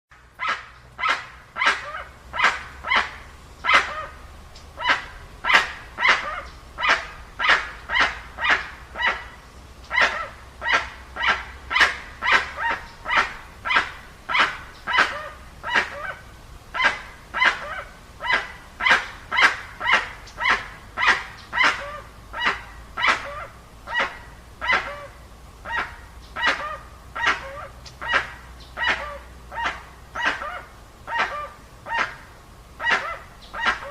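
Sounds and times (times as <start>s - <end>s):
animal barking calls: 0.4s - 33.9s.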